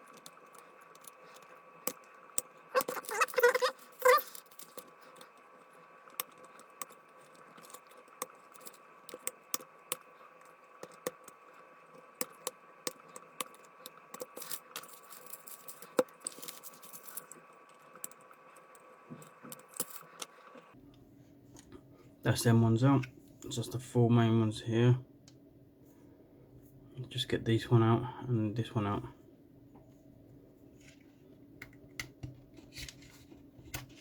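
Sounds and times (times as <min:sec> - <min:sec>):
plastic and metal clicks and scrapes: 0:31.6 - 0:34.0.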